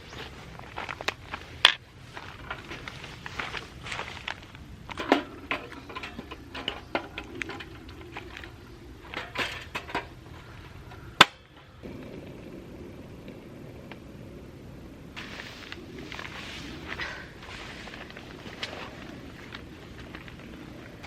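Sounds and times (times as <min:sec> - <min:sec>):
steady low background noise: 0:00.0 - 0:21.0.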